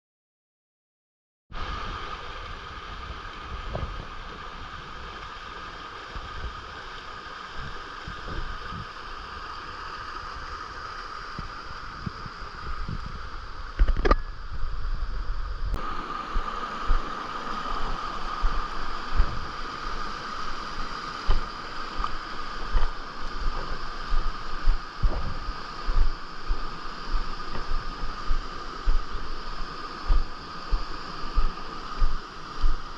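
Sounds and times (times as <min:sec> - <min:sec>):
wind rumble on microphone: 0:01.5 - 0:32.9
hiss: 0:01.6 - 0:13.6, 0:15.2 - 0:32.9
high insect drone: 0:05.2 - 0:32.9
microphone handling thumps: 0:24.7 - 0:25.4.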